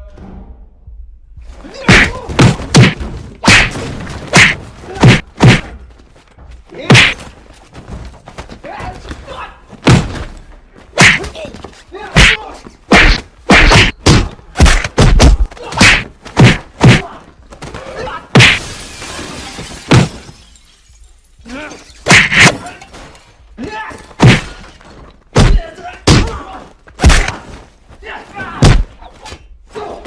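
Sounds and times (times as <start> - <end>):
punch and hit sound effects: 1.9 - 5.7, 6.9 - 7.2, 9.8 - 10.3, 11.0 - 11.4, 12.2 - 17.1, 18.4 - 18.6, 22.1 - 22.6, 24.2 - 24.6, 25.4 - 26.4, 27.0 - 27.4, 28.6 - 28.9.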